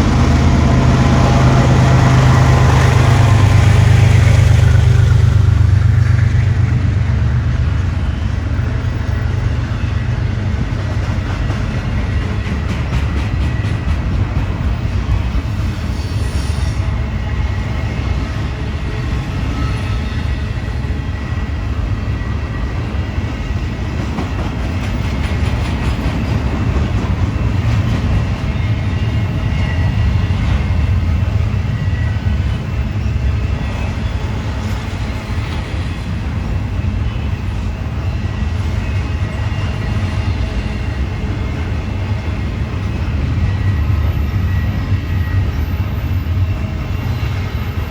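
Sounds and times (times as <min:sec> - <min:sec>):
freight train cars rumbling: 0:00.0 - 0:47.9
faint high wheel squeal: 0:15.6 - 0:23.9, 0:28.2 - 0:47.9.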